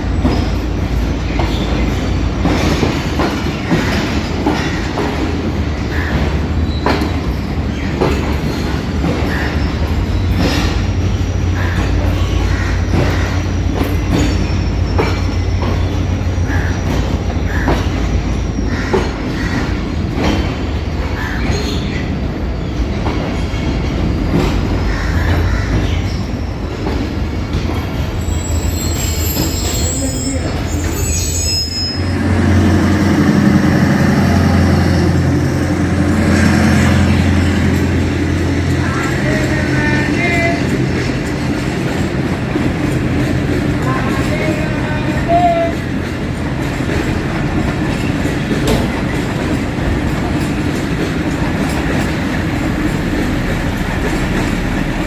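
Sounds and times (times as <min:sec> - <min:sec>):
train wheels clacking over rail joints: 0:00.0 - 0:30.0, 0:32.1 - 0:55.0
diesel locomotive engine drone: 0:00.0 - 0:55.0
low train rumble: 0:00.0 - 0:55.0
faint wheel squeal: 0:28.2 - 0:32.2.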